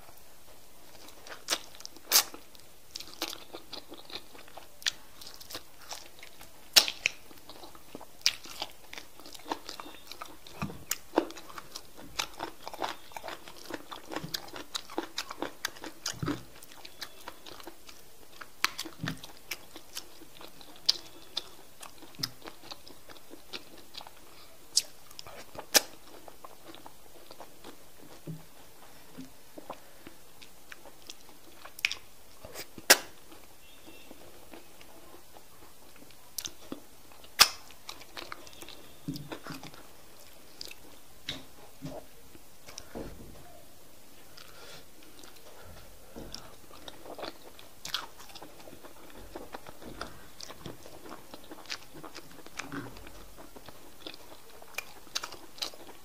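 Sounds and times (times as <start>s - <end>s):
wet chewing: 0.9s - 41.0s, 44.3s - 56.0s
mouth clicks and lip smacks: 30.4s - 33.2s, 37.2s - 38.4s.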